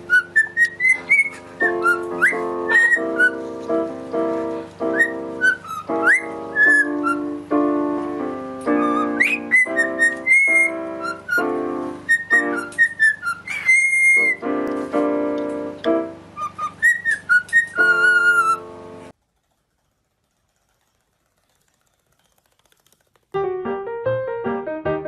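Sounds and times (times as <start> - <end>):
cockatiel whistling: 0.0 - 3.4, 4.8 - 7.4, 8.7 - 14.5, 16.4 - 18.6
piano chords: 0.0 - 19.2, 23.4 - 25.0.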